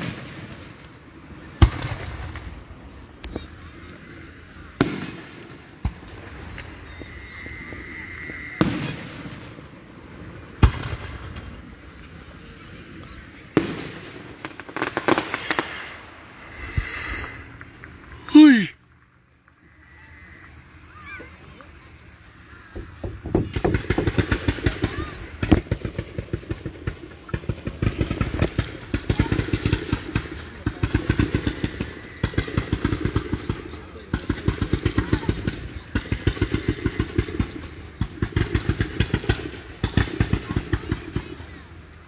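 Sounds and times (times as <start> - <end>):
fireworks crackling: 0.0 - 42.0
fireworks booming: 1.3 - 18.7, 22.3 - 42.0
thin high whistle: 6.4 - 10.5, 15.2 - 17.6.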